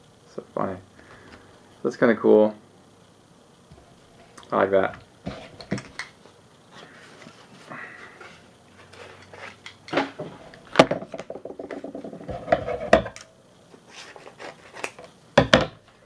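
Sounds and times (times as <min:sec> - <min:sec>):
hard items clicking and clattering: 0:09.1 - 0:13.3.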